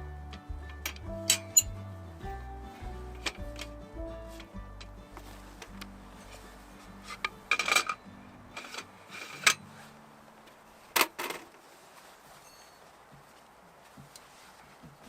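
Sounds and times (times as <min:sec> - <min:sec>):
hard objects clinking and knocking: 0:07.1 - 0:08.0.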